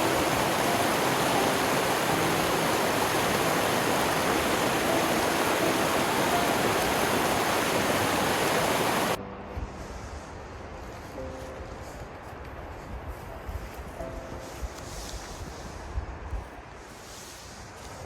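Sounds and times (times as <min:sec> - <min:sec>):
waterfall roaring: 0:00.0 - 0:09.2.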